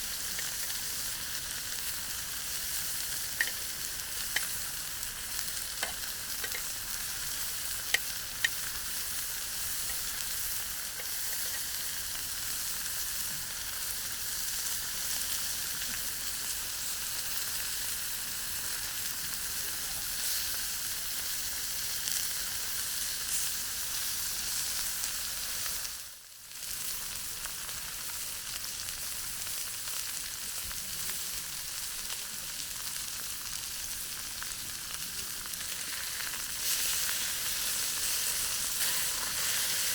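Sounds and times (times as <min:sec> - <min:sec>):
sharp pops of frying: 0:00.0 - 0:12.7
chicken sizzling in a pan: 0:00.0 - 0:39.9.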